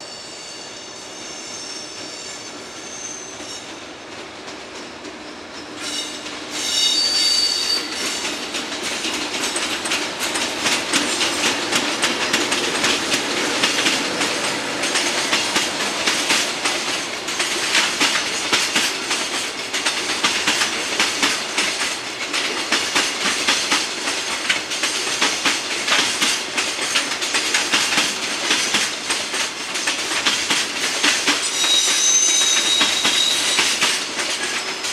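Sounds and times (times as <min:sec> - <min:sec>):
train wheels clattering over rail joints: 0:07.4 - 0:34.9.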